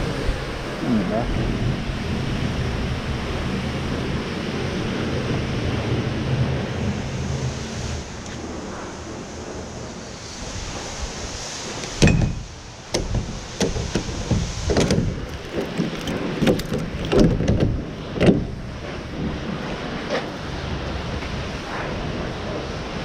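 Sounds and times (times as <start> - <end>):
steady rushing noise: 0.0 - 23.0
knocks clunks and rattles: 12.0 - 19.4.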